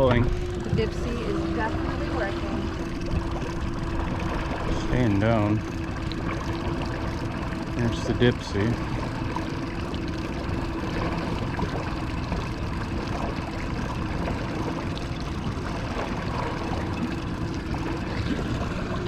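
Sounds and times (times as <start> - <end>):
boat motor humming: 0.0 - 19.0
water noise: 0.0 - 19.0
wind: 0.0 - 19.0.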